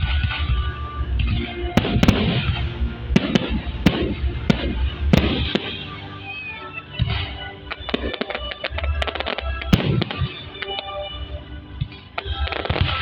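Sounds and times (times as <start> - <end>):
low rumble: 0.0 - 7.7
fireworks crackling: 0.0 - 13.0
fireworks shells bursting: 1.2 - 11.0.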